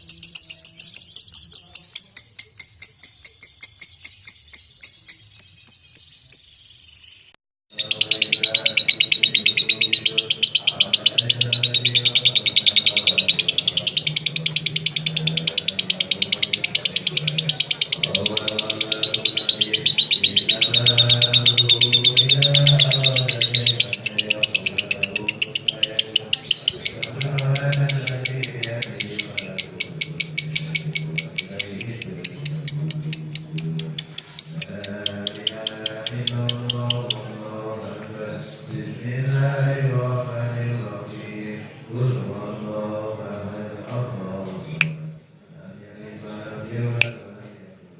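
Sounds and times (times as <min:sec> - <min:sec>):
bird rapid high chattering trill: 0:00.0 - 0:06.6, 0:07.7 - 0:37.4.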